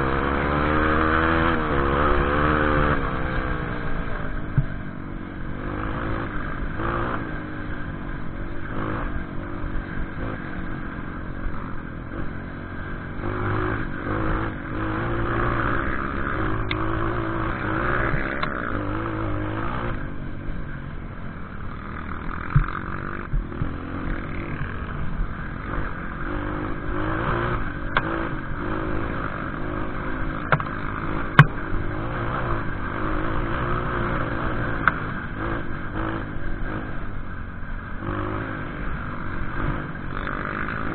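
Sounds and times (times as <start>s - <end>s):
motorcycle engine revving: 0.0s - 40.9s
sharp knocks: 30.5s - 30.7s.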